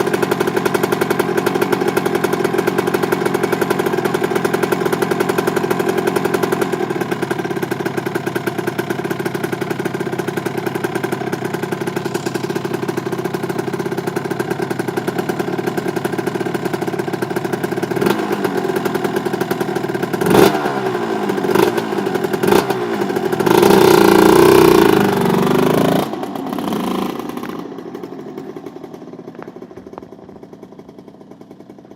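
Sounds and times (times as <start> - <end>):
motorcycle engine idling and revving: 0.0 - 31.9.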